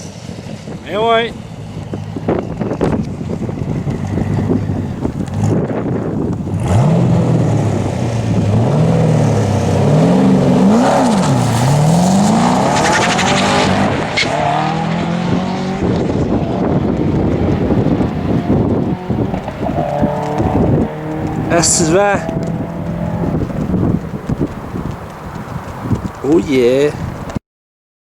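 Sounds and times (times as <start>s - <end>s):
car engine revving: 1.3s - 26.2s.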